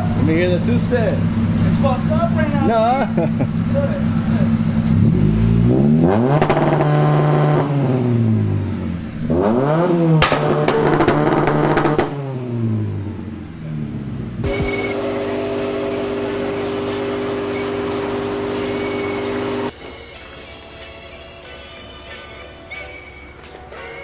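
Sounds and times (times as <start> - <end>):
car engine revving: 0.0 - 19.7
background music: 19.7 - 24.0.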